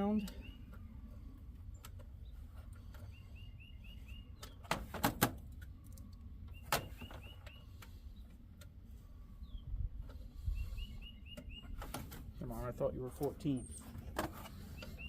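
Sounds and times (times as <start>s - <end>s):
small bird chirping: 1.7s - 4.6s, 6.5s - 8.3s, 9.4s - 11.9s, 14.6s - 15.0s.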